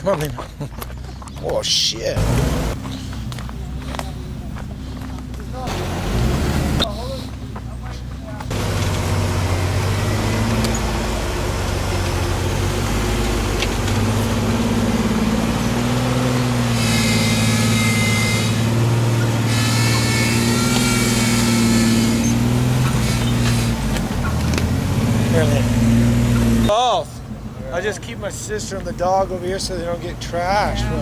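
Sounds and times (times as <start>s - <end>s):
truck engine revving under load: 2.2s - 26.7s.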